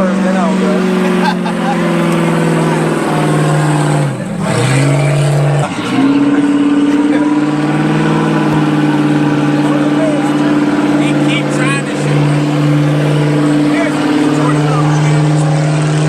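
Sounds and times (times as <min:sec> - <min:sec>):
car engine at high revs: 0:00.0 - 0:16.0.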